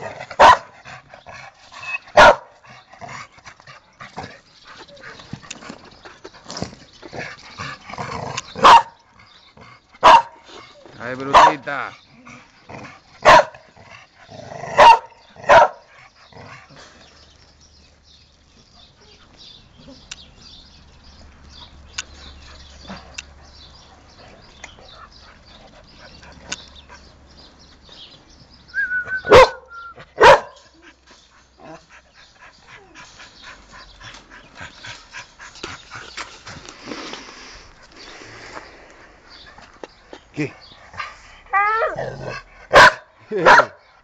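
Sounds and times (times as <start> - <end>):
dog barking: 0.4 - 0.7, 2.2 - 2.5, 8.6 - 9.0, 10.0 - 10.4, 11.3 - 11.7, 13.2 - 13.6, 14.8 - 15.9, 29.3 - 30.6, 42.7 - 43.8.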